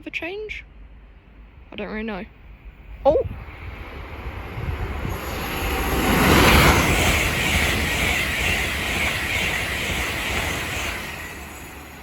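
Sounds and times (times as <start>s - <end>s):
train passing: 0.5s - 12.0s.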